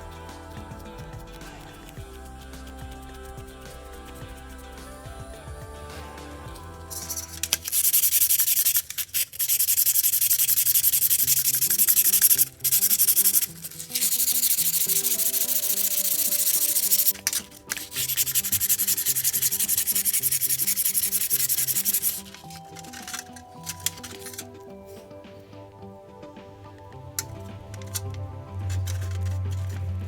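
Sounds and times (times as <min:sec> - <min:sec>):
sanding a metal pipe: 0:07.0 - 0:24.4.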